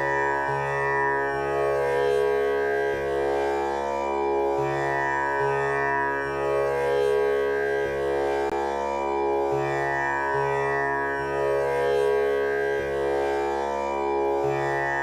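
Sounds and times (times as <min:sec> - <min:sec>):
tanpura drone: 0:00.0 - 0:15.0.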